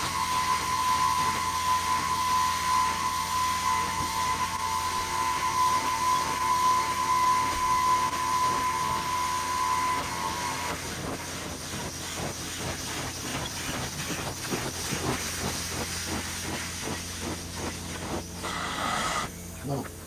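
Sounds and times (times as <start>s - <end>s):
high whine: 0.0s - 20.0s
vacuum cleaner hiss: 0.0s - 20.0s
rapid irregular clicks and crackles: 10.7s - 18.8s.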